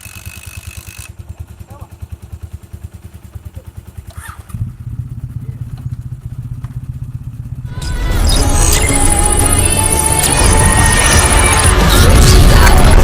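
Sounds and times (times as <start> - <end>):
motorcycle engine running: 0.0 - 13.0
music: 7.7 - 13.0.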